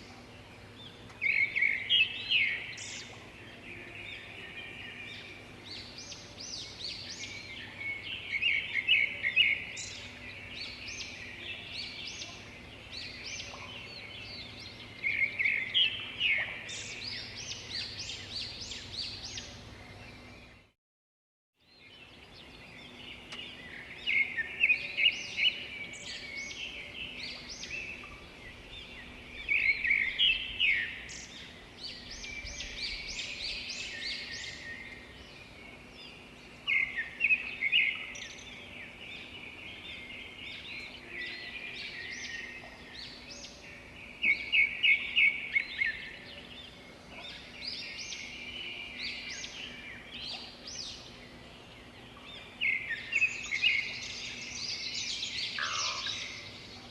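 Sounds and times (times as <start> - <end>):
birds chirping: 0.0 - 20.8, 21.7 - 56.9.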